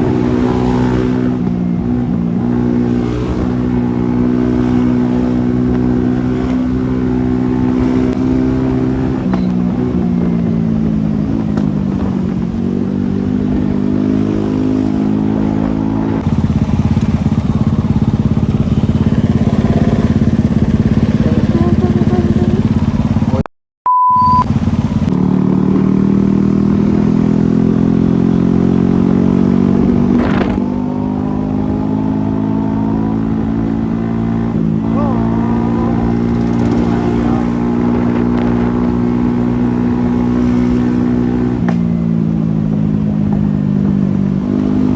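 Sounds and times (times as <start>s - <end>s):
motorcycle engine revving: 0.0s - 23.5s, 24.4s - 44.9s
short beep: 23.8s - 24.5s.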